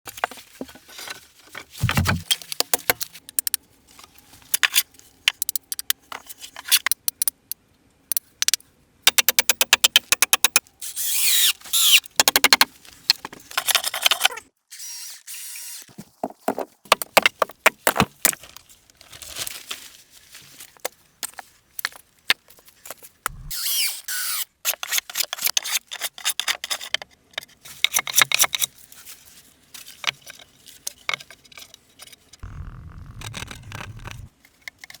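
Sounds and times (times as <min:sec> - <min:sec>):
squeaky scraping: 0:32.4 - 0:34.3.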